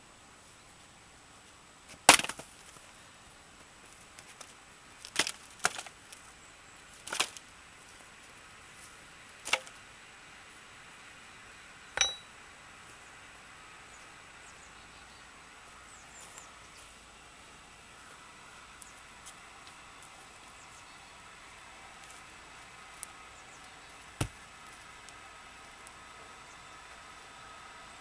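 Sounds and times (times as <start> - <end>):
axe striking wet log: 2.1 - 2.4, 12.0 - 12.3, 24.2 - 24.4
short metallic ring: 12.0 - 12.4.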